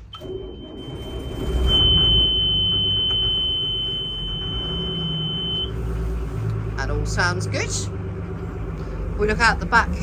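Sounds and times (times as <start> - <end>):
diesel engine starting and idling: 0.0 - 10.0
warning buzzer high tone: 0.6 - 5.7.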